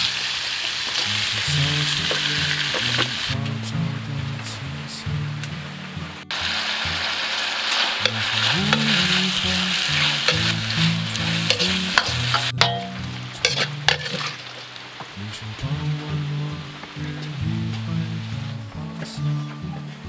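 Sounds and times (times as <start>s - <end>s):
food sizzling in a wok: 0.0s - 3.4s, 6.3s - 15.2s
background music: 1.0s - 20.0s
spatula scraping on pan: 8.0s - 14.5s.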